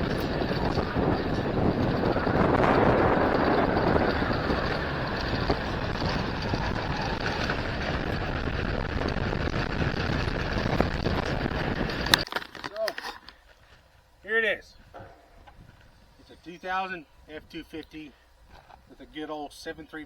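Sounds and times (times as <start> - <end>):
truck road and wind noise: 0.0 - 12.3.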